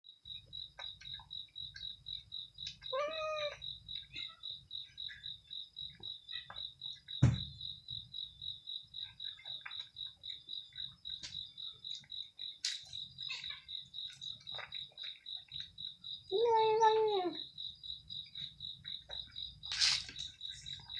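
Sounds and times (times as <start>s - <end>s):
cat meowing: 2.9s - 3.6s
sharp knock: 7.2s - 7.6s.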